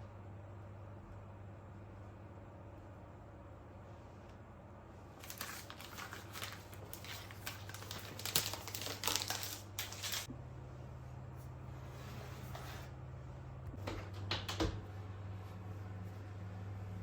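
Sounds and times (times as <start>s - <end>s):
packaging crinkling: 5.2s - 10.3s.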